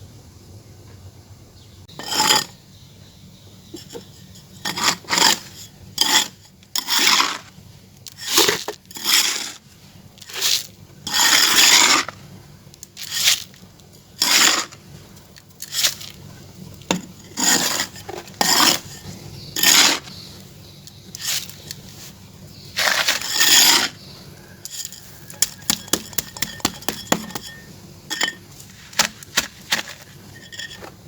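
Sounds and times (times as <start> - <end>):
scraping dry clay: 1.9 - 2.6, 3.7 - 9.6, 10.2 - 12.2, 12.8 - 31.0.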